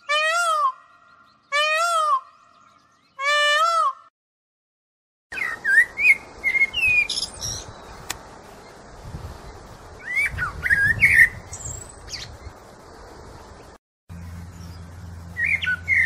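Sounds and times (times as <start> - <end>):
birds chirping and calling: 0.0 - 4.1, 5.3 - 16.0
steady outdoor hiss: 5.3 - 16.0.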